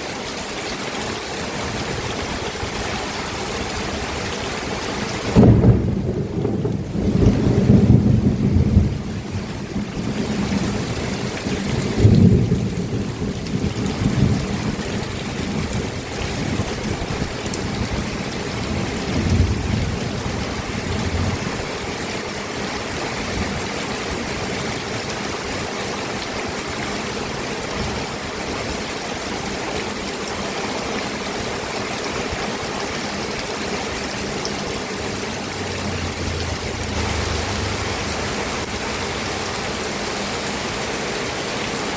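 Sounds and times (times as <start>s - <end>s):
heavy rain: 0.0s - 41.9s
rolling thunder: 5.3s - 15.0s, 34.8s - 40.1s.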